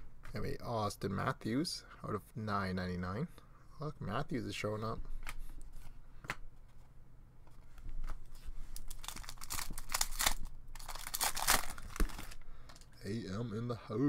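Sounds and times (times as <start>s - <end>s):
wrappers crinkling: 8.7s - 12.9s.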